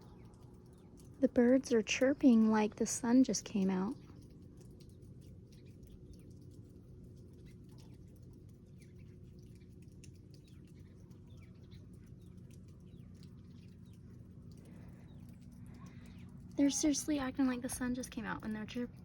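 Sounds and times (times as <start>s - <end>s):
songbirds chirping: 0.0s - 19.0s
steady low hum: 0.0s - 19.0s.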